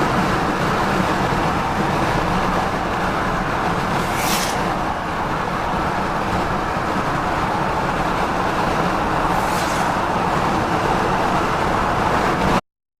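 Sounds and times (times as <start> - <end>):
car road and engine noise: 0.0 - 12.6
rushing hiss: 3.9 - 4.8, 9.3 - 10.1.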